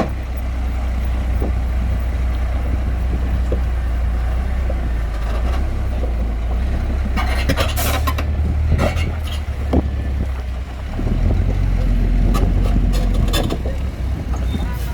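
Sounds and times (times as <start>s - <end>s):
heavy machine engine droning: 0.0s - 14.9s
scraping and rattling: 4.7s - 9.9s, 11.0s - 14.9s.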